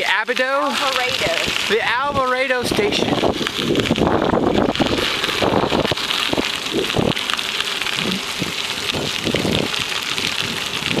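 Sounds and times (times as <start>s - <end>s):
wind buffeting microphone: 0.9s - 11.0s.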